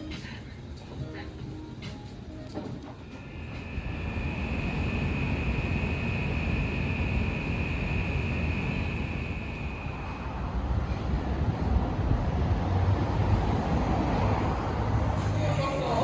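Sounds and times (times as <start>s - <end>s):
vehicle rumble: 0.0s - 16.0s
high-pitched whine: 3.2s - 10.6s.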